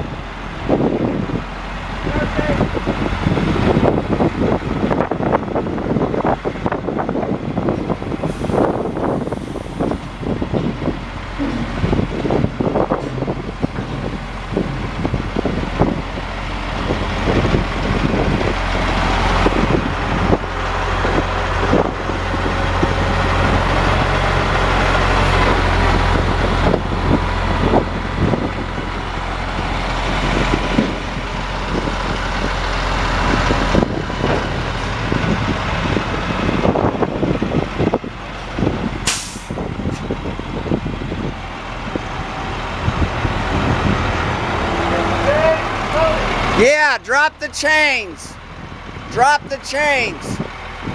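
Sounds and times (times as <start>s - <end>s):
diesel truck engine running: 0.0s - 50.9s
truck clanks and rattles: 0.0s - 50.9s
sharp air hiss: 39.0s - 39.6s.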